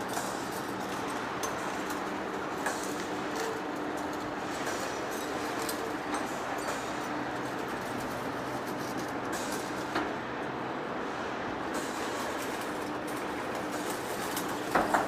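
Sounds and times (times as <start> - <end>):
lathe running with mechanical rumble: 0.0 - 15.0.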